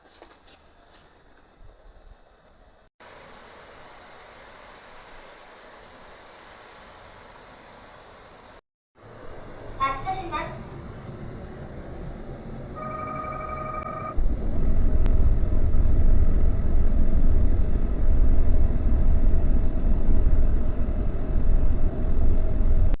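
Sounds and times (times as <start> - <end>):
monorail car running: 3.1 - 23.0
steady electronic beep: 12.8 - 14.2.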